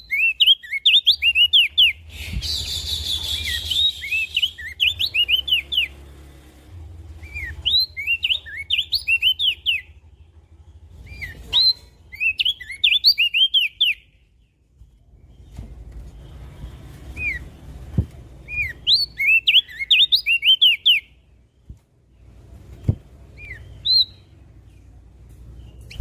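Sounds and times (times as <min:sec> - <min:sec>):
bird whistled chirps: 0:00.0 - 0:06.0, 0:07.2 - 0:09.9, 0:11.1 - 0:14.2, 0:18.4 - 0:21.2, 0:23.4 - 0:24.3.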